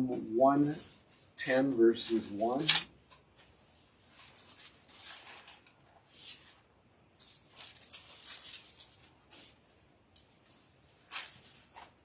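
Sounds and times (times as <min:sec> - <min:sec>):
paper rustling: 0:03.4 - 0:09.7, 0:10.4 - 0:12.0.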